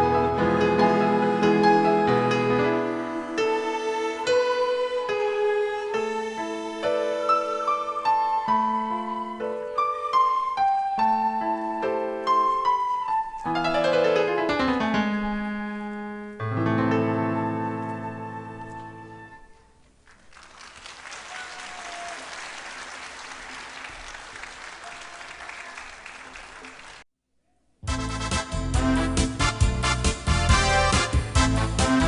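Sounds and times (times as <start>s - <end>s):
keyboard piece: 0.0s - 19.6s, 27.8s - 32.0s
audience applauding: 20.0s - 27.1s.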